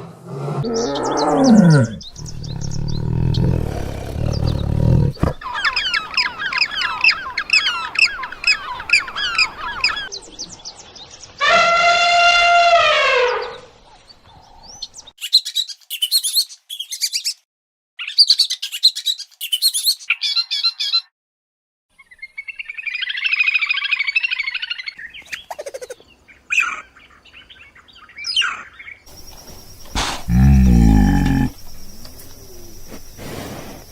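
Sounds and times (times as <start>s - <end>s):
animal low roar: 0.0s - 5.5s, 29.9s - 33.7s
bird chirping: 0.6s - 11.4s
long pitched animal call: 30.0s - 31.6s.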